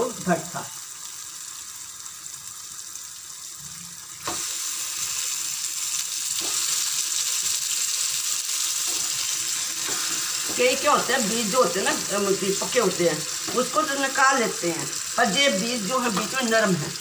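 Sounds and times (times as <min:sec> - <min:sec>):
masala sizzling in oil: 0:00.0 - 0:17.0.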